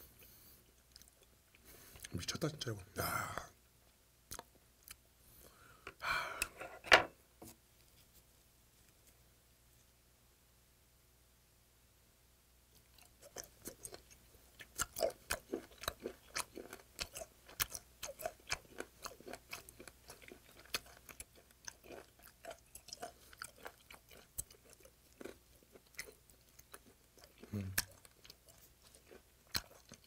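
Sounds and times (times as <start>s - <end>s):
person chewing with wet smacking: 0.7s - 2.1s, 4.3s - 5.0s, 12.7s - 30.0s.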